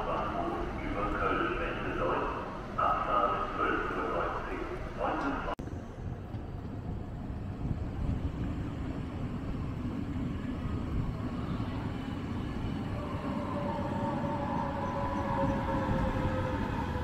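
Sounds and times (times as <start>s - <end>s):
train rumbling: 0.0s - 17.0s
two-tone whine: 8.7s - 17.0s.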